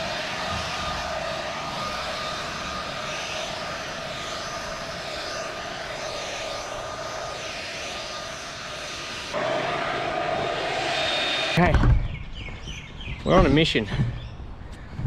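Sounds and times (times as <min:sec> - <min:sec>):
leaf blower whining: 0:00.0 - 0:11.7.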